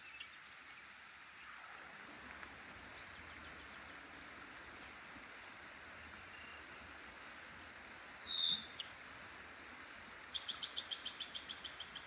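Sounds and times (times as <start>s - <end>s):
faint background hiss: 0.0s - 12.0s
wild birds calling: 2.6s - 5.2s, 8.2s - 9.0s, 10.2s - 12.0s.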